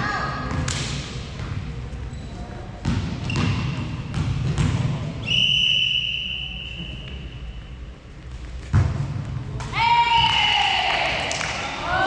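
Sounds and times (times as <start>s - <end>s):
referee's whistle: 5.2s - 7.4s.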